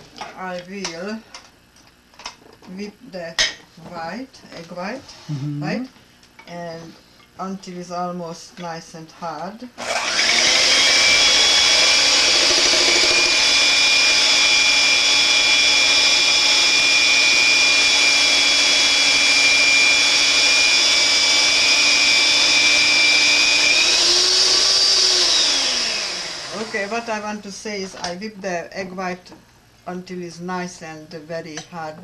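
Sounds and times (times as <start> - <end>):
electric mixer whining: 9.8 - 27.2.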